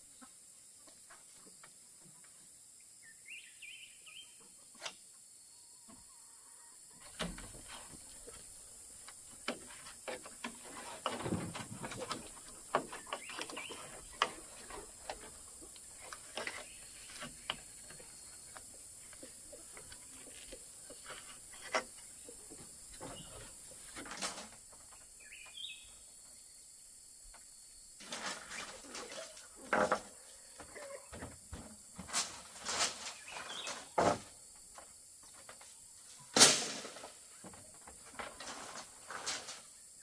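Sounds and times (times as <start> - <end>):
steady high hiss: 32.0 - 40.0.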